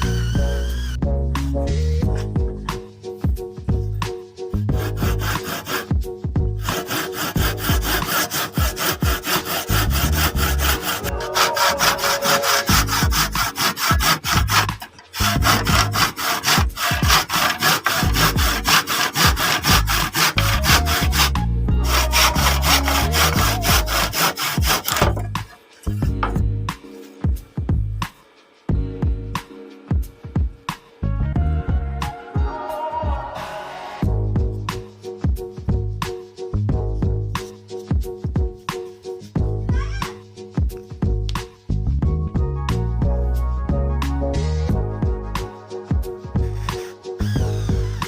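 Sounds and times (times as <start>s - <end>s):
hand saw cutting: 0.0s - 1.0s, 4.7s - 5.9s, 6.6s - 25.5s, 46.4s - 48.0s.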